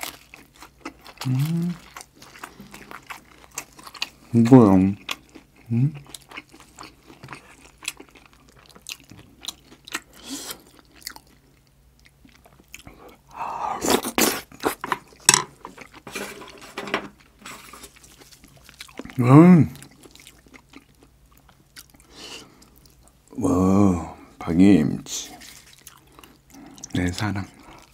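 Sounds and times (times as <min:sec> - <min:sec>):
chewing and crunching: 0:00.0 - 0:04.3, 0:04.9 - 0:13.3, 0:13.9 - 0:16.1, 0:17.2 - 0:23.2, 0:25.2 - 0:27.9
person humming: 0:01.2 - 0:01.8.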